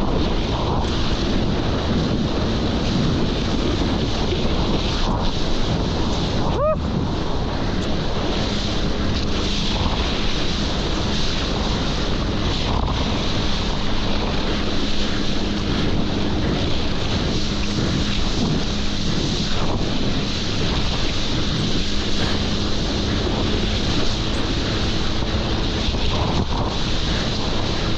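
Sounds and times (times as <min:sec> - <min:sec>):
jet ski engine drone: 0:00.0 - 0:27.9
water rushing: 0:00.0 - 0:27.9
wind buffeting microphone: 0:00.0 - 0:27.9
short pitched cry: 0:06.5 - 0:06.9.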